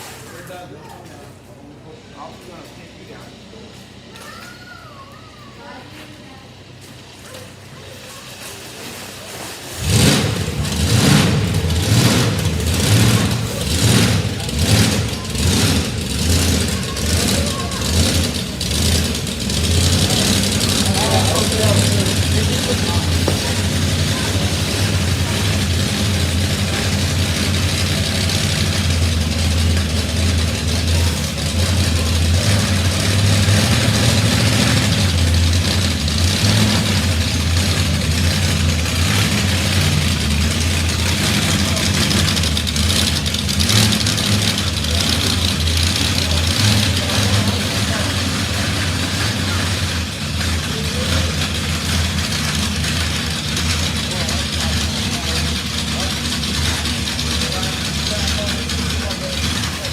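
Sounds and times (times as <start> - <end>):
constant rushing noise: 6.0 - 59.9
large engine revving: 6.5 - 59.9.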